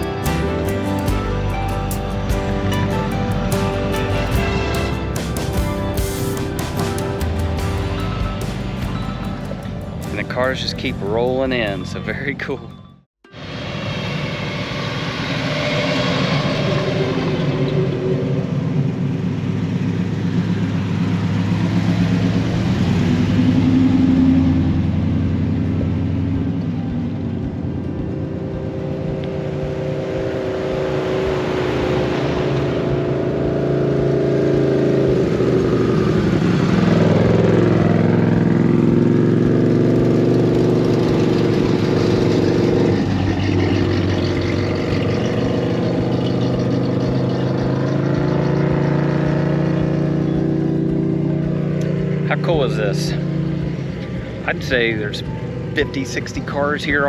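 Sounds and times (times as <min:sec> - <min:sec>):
cars driving past: 0:13.3 - 0:57.0.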